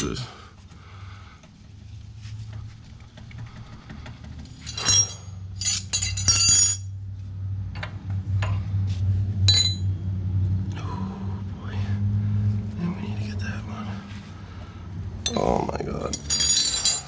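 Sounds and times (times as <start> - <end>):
steady low hum: 0.0 - 17.0
metal wrenches clinking: 4.5 - 6.9, 9.5 - 9.9, 15.2 - 17.0.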